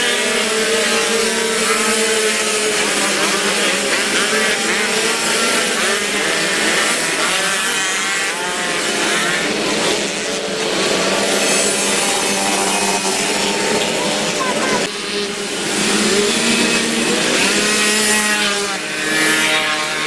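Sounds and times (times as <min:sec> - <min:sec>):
moped engines revving: 0:00.0 - 0:20.0.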